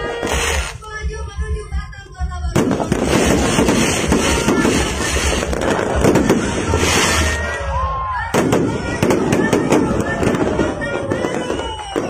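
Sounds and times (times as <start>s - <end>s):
background music with low beat: 0.0s - 6.3s
fireworks crackling and popping: 0.0s - 12.0s.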